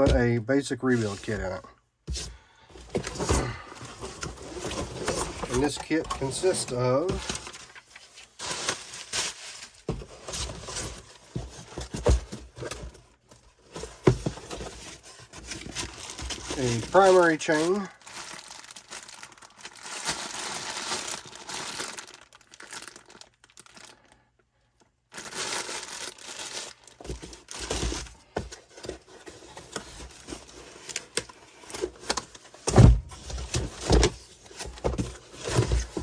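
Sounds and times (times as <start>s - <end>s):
plastic packaging crinkling: 3.0s - 11.2s, 14.5s - 24.2s, 25.1s - 28.1s.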